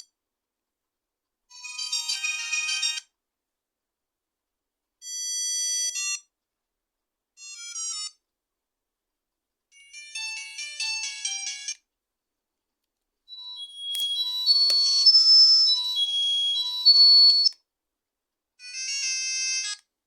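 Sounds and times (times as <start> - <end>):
phone ringtone melodies: 13.4 - 17.5.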